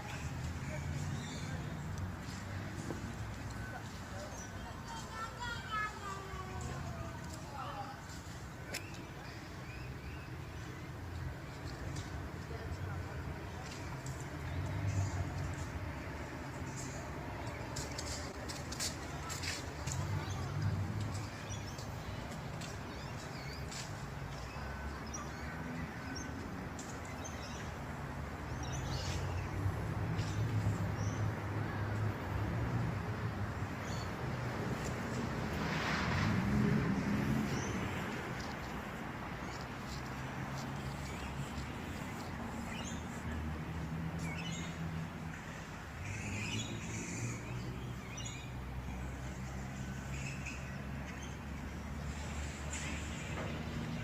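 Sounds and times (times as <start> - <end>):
birds chirping: 36.7 - 54.0.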